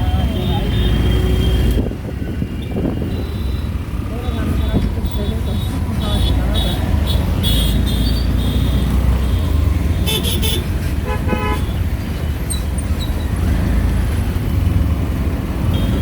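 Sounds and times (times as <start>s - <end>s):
engine and road rumble: 0.0s - 16.0s
vehicle horn toots: 10.0s - 11.8s, 15.7s - 16.0s.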